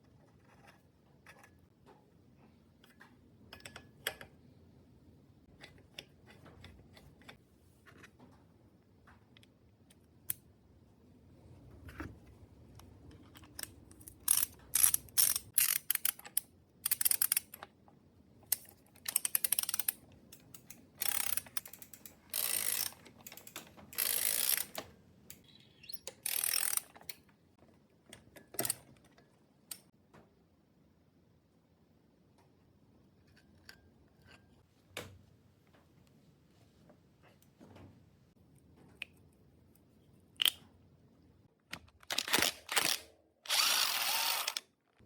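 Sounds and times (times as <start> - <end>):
ratchet wrench clicking: 13.6 - 17.6, 18.5 - 20.0, 20.6 - 24.8, 26.1 - 27.0.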